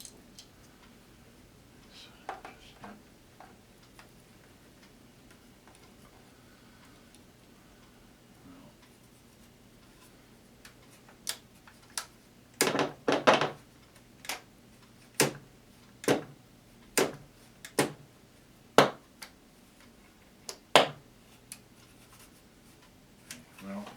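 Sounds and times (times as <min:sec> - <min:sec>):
faint steady hum: 0:00.0 - 0:23.9.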